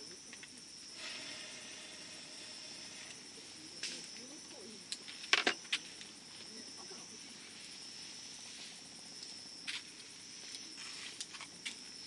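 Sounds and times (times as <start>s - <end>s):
high-pitched hum: 0.0s - 7.9s.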